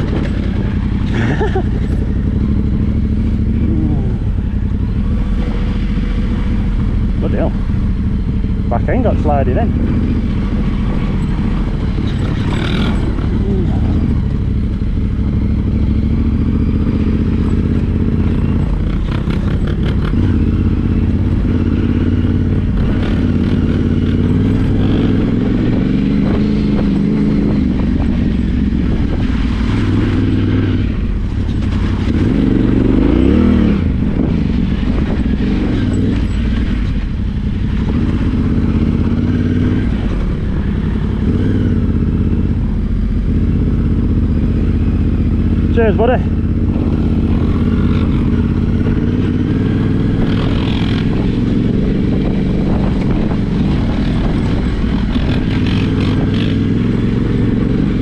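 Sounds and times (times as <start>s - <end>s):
motorcycle engine running under load: 0.0s - 58.0s
motorcycle rattling over rough ground: 0.0s - 58.0s.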